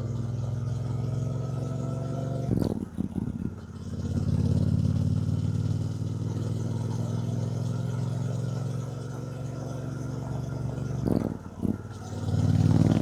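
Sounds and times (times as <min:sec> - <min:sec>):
motorcycle engine pulling: 0:12.1 - 0:13.0.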